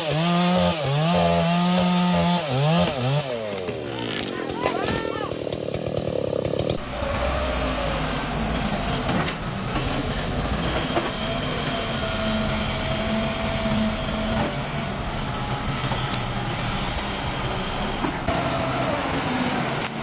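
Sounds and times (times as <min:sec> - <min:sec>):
heavy machinery rumbling: 0:03.4 - 0:14.6.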